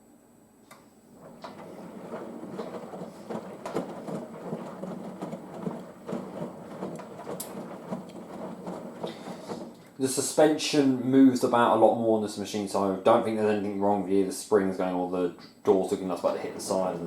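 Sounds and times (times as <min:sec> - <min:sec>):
laundry and water sloshing: 0:01.1 - 0:10.4, 0:16.0 - 0:17.0
washing machine drum tumbling: 0:01.1 - 0:11.7, 0:15.8 - 0:17.0.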